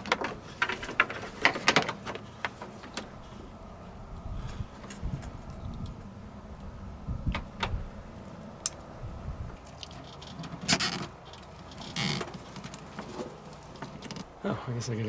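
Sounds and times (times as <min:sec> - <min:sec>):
small clicks and handling noises: 0:09.6 - 0:14.3.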